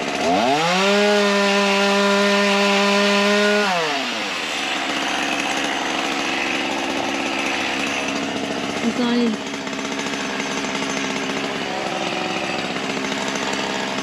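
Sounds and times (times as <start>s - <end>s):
chainsaw revving: 0.0s - 14.0s.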